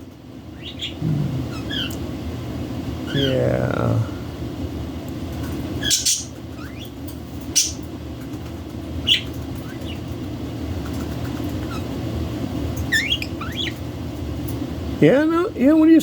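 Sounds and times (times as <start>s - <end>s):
steady low hum: 0.0s - 16.0s
parrots chirping and squawking: 0.5s - 2.1s, 5.4s - 12.1s, 12.8s - 14.6s.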